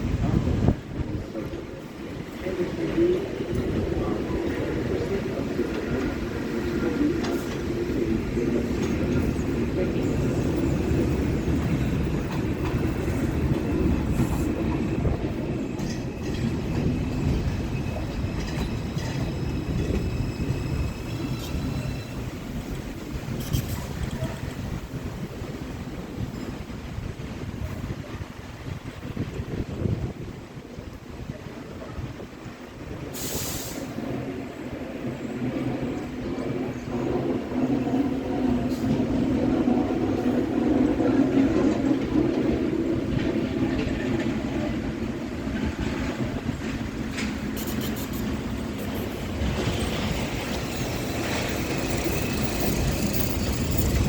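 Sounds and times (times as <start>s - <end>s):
train rumbling on elevated track: 0.0s - 54.0s
wheels clacking over rail joints: 2.3s - 24.8s, 35.9s - 54.0s
faint high wheel squeal: 17.2s - 22.4s, 47.5s - 54.0s
air hiss: 33.0s - 34.1s.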